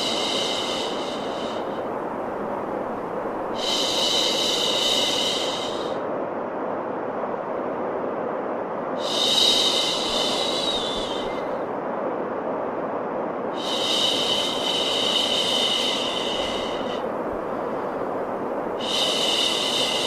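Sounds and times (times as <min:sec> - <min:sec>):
higher hissing layer: 0:00.0 - 0:06.1, 0:09.0 - 0:11.8, 0:13.5 - 0:20.0
white noise hiss: 0:00.0 - 0:20.0.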